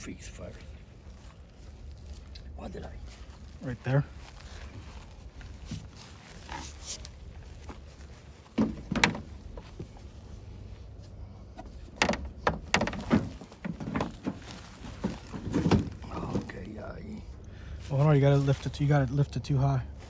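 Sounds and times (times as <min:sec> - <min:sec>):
steady low hum: 0:00.0 - 0:20.0
metal parts knocking and rattling: 0:11.9 - 0:16.0.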